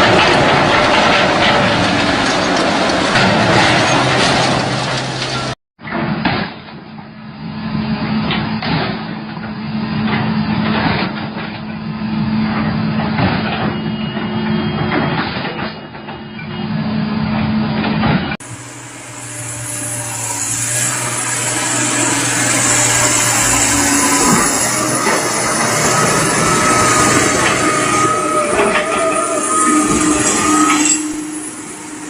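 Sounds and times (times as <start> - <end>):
metal clanks and knocks: 0.0 - 6.7
heavy machine engine droning: 0.0 - 32.0
fuller-sounding engine: 18.4 - 32.0.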